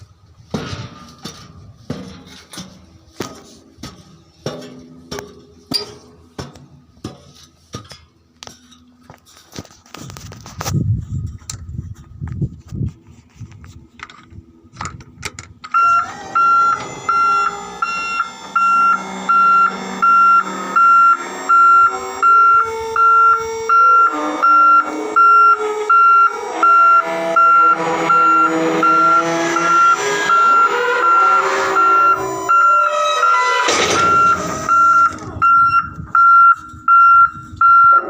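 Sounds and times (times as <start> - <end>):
low shifting tones: 13.1 - 38.0
reversing alarm beeps: 15.7 - 38.0.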